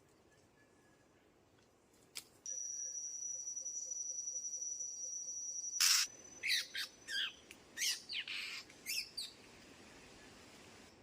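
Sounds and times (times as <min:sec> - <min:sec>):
birds chirping: 0:03.2 - 0:09.5.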